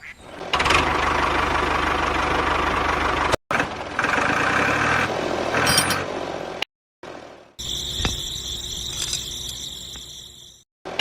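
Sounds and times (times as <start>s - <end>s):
small engine running with knocking: 0.6s - 5.0s.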